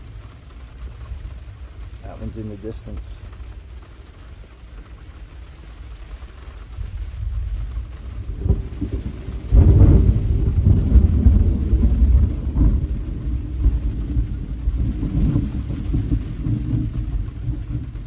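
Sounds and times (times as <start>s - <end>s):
steady rain: 0.0s - 18.0s
thunder rumbling: 6.6s - 18.0s
faint thunder crack: 6.8s - 18.0s.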